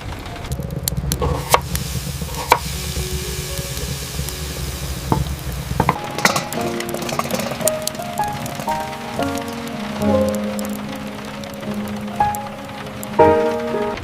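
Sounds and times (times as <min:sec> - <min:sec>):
food frying in a pan: 0:00.7 - 0:14.0
soft background music: 0:02.4 - 0:14.0
utensil clinking: 0:03.3 - 0:13.6.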